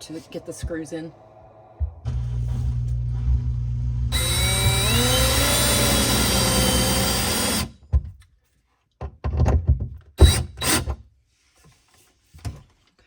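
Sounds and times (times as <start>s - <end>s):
power drill driving screw: 4.1s - 7.8s, 10.2s - 10.9s
knocks and clunks of handling: 7.8s - 10.2s.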